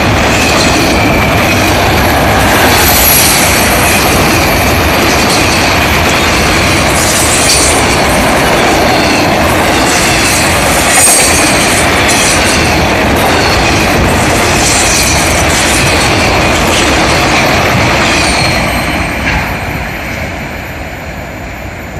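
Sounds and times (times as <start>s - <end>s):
freight cars rolling on rails: 0.0s - 21.9s.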